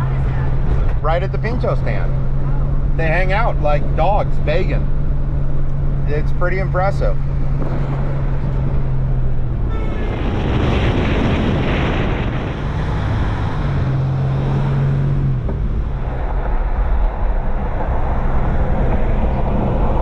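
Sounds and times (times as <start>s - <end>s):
road rumble: 0.0s - 20.0s
wind buffeting microphone: 7.3s - 14.6s
wind rush: 7.4s - 20.0s.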